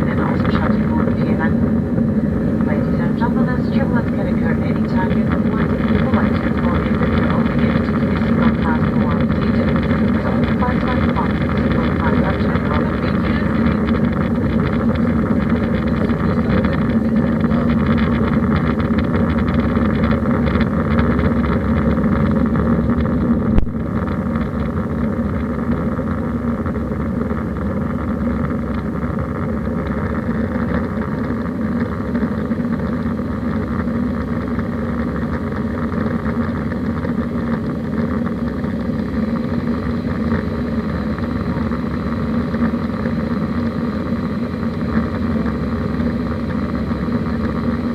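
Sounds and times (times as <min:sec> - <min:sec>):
airliner cabin engine hum: 0:00.0 - 0:47.9.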